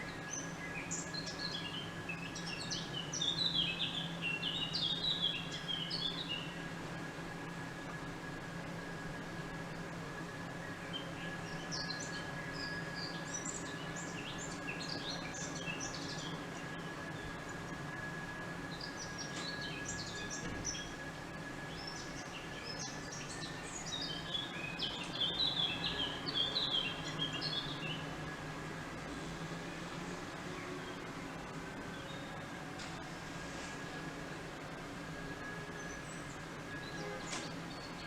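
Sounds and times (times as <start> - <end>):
steady outdoor hum: 0.0 - 38.0
small birds chirping: 0.2 - 6.6, 21.7 - 28.1.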